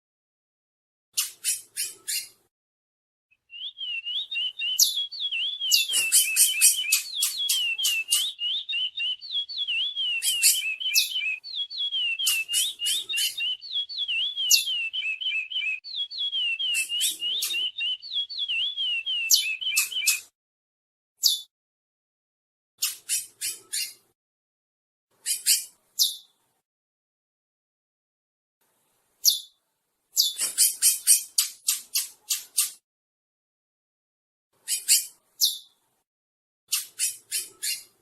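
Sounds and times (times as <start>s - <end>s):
bird warbling whistled song: 3.4s - 20.3s, 30.2s - 32.8s, 34.6s - 35.7s, 36.7s - 38.0s
sharp high bird chips: 4.7s - 11.4s, 12.0s - 13.6s.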